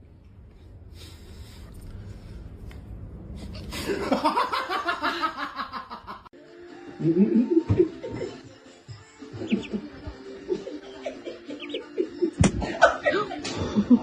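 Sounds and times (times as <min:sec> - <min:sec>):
people laughing: 0:03.7 - 0:06.3, 0:07.0 - 0:08.5, 0:09.3 - 0:14.0.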